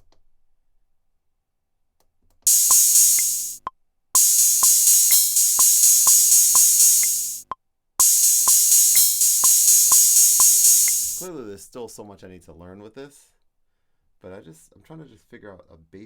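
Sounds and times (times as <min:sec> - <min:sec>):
held low synth notes: 0:02.5 - 0:03.6, 0:04.2 - 0:07.4, 0:08.0 - 0:11.3
drum machine beat: 0:02.5 - 0:11.3.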